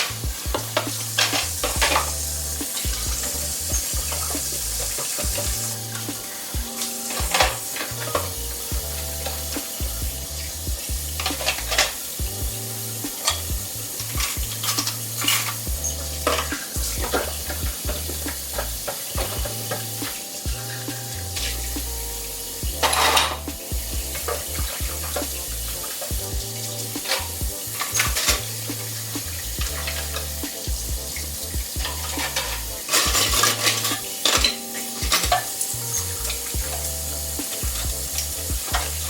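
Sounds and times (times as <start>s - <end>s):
music bass line: 0.0s - 39.0s
steady hiss: 0.0s - 39.0s
dishes and utensils clinking: 13.1s - 21.5s, 22.8s - 23.6s, 31.6s - 39.0s.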